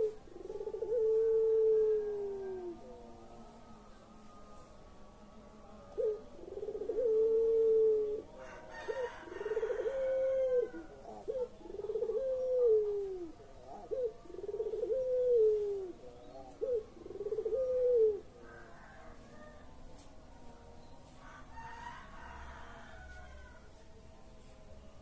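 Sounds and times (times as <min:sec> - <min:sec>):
dove cooing: 0:00.0 - 0:03.1, 0:05.8 - 0:19.6.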